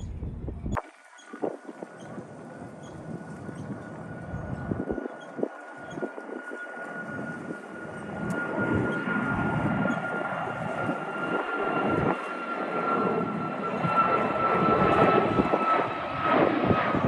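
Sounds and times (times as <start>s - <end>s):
high whine sinking in pitch: 0.0s - 6.4s
jet airplane flying over: 0.0s - 17.0s.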